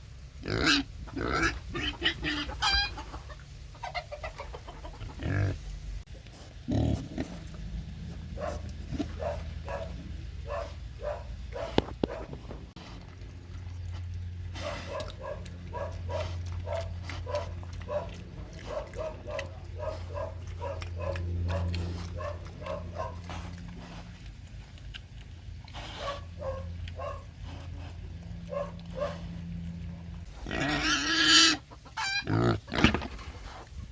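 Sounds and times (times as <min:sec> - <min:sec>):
pig grunting: 0:00.4 - 0:03.4, 0:04.0 - 0:33.9
low hum: 0:05.5 - 0:30.5.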